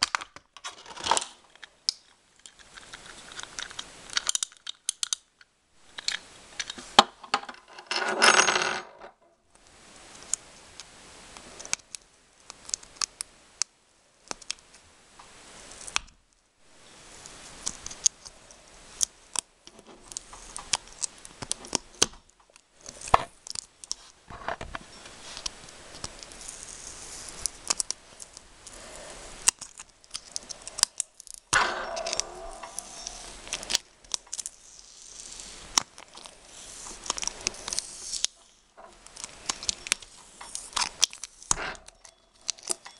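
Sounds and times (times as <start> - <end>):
clicks of small hard parts: 0.0 - 7.7.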